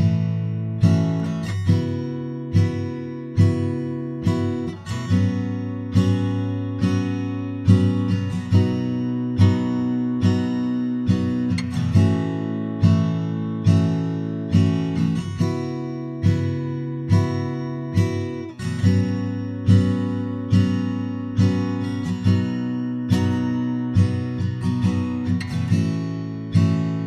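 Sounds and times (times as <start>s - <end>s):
acoustic guitar strumming chords: 0.0s - 27.0s.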